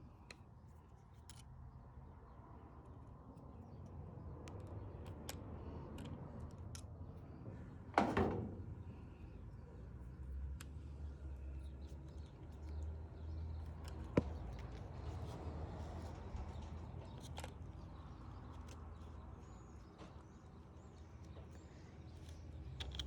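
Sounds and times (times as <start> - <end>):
metal parts clicking and tapping: 1.2 - 1.5, 22.1 - 23.0.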